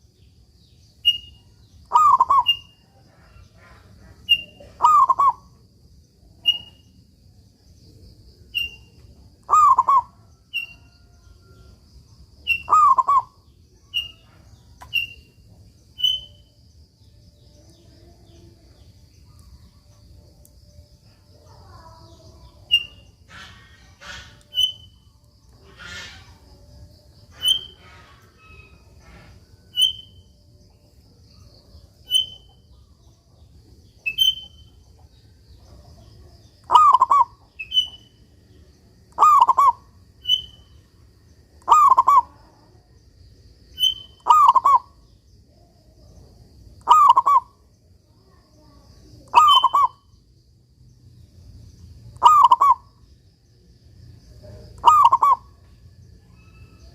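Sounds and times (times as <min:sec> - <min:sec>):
dove cooing: 0:03.6 - 0:05.4, 0:09.5 - 0:10.2, 0:36.7 - 0:37.4, 0:41.7 - 0:42.3, 0:54.8 - 0:55.4.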